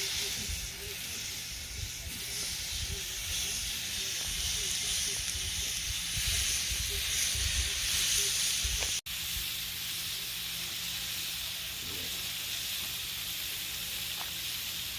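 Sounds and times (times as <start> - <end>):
steaks sizzling on a grill: 0.0 - 14.9.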